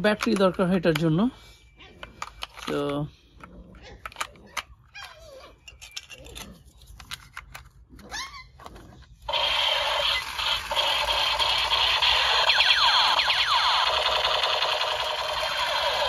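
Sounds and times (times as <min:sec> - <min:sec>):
toy gun clicks: 0:09.3 - 0:16.0
toy gun electronic sound effect: 0:09.3 - 0:16.0.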